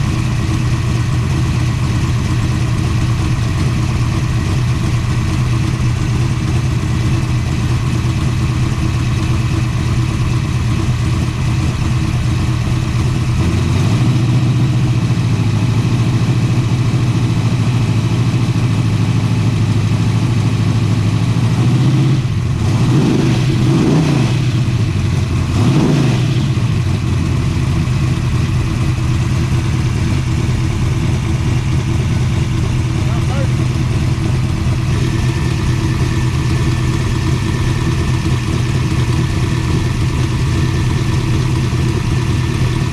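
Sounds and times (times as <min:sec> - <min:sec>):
vee eight engine idling: 0:00.0 - 0:42.9
engine revving: 0:21.4 - 0:42.9.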